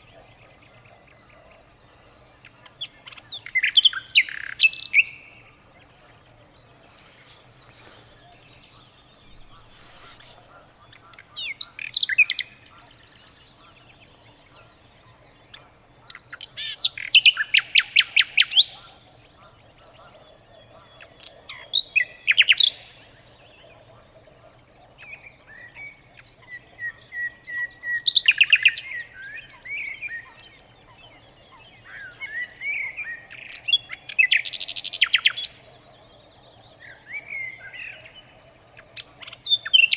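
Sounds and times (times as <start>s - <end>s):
songbird singing sharp chirps: 0.0s - 39.9s
faint low hum: 5.2s - 17.0s.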